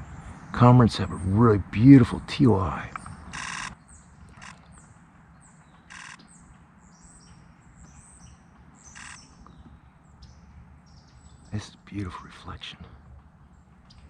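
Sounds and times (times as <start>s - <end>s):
small birds chirping: 0.0s - 14.0s
rapid clicking: 3.0s - 4.6s.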